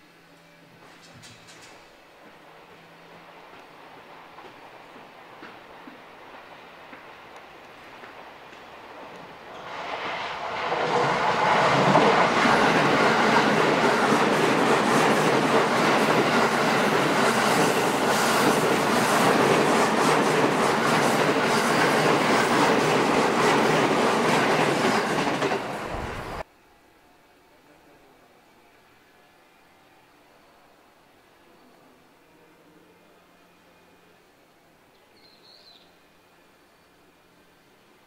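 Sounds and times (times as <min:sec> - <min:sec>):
electric train passing: 0:01.6 - 0:27.0.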